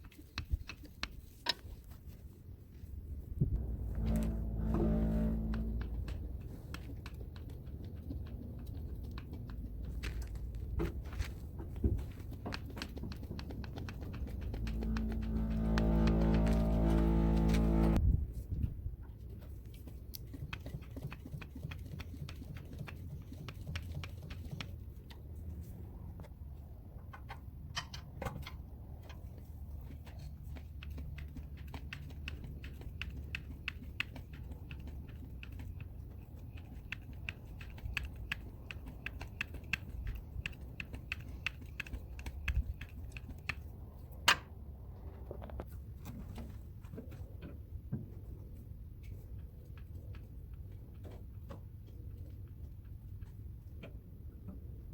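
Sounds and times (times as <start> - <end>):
low rumble: 3.4 - 6.7, 14.1 - 18.3.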